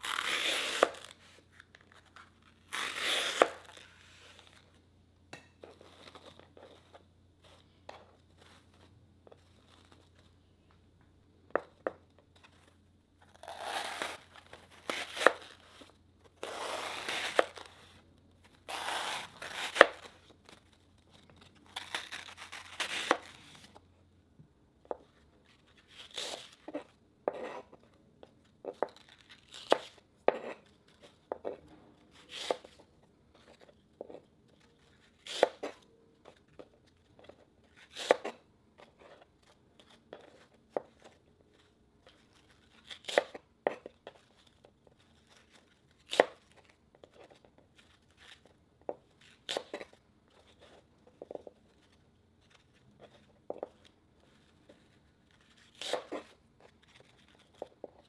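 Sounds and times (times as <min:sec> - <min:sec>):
crisp cutting and tearing: 0:00.0 - 0:01.4, 0:02.0 - 0:04.6, 0:13.3 - 0:15.8, 0:16.4 - 0:18.0, 0:18.6 - 0:23.8.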